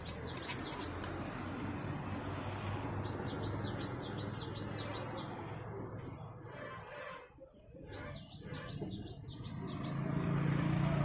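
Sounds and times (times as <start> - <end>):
bird chirping: 0.0 - 1.1, 3.0 - 5.7, 7.6 - 10.4.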